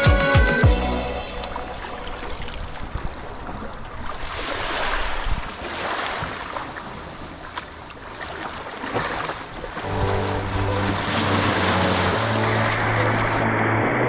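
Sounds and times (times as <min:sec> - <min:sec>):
waves breaking on beach: 0:01.5 - 0:13.8
wind rumbling on microphone: 0:01.9 - 0:05.6.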